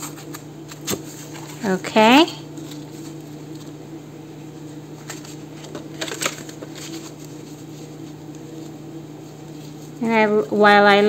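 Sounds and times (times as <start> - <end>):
steady low hum: 0.0 - 11.0
paper rustling: 5.0 - 8.8.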